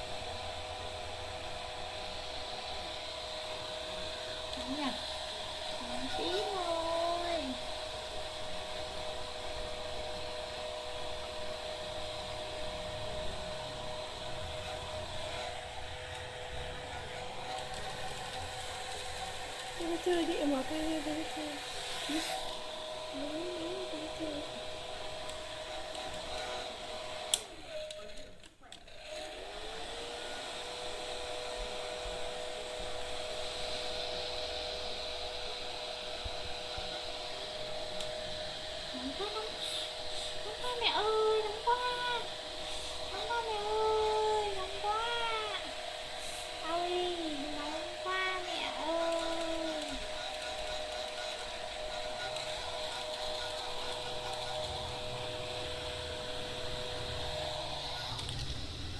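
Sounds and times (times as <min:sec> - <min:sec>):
hair dryer running: 0:00.0 - 0:58.9.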